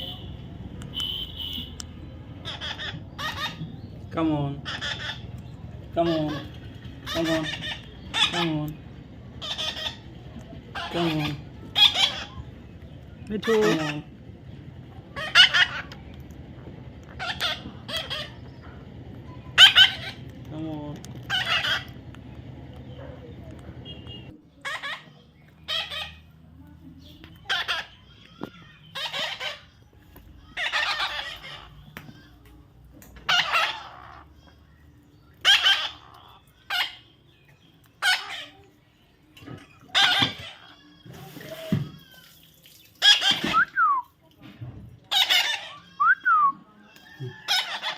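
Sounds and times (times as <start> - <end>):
parrot squawking: 2.4 - 3.9, 4.5 - 5.3, 5.9 - 8.7, 9.4 - 12.5, 13.4 - 14.2, 15.1 - 16.0, 17.1 - 18.4, 19.4 - 20.4, 21.2 - 22.0, 23.8 - 26.3, 27.4 - 28.0, 28.8 - 29.8, 30.4 - 31.9, 33.2 - 34.5, 35.4 - 37.2, 38.0 - 38.7, 39.6 - 42.3, 43.0 - 43.8, 45.1 - 46.4, 47.0 - 47.9.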